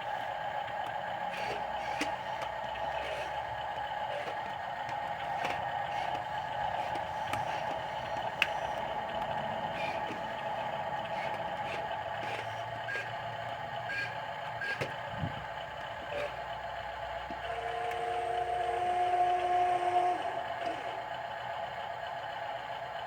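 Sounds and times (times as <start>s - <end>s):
electric motor and gearbox whine: 0.0s - 23.0s
held tones: 17.3s - 21.1s.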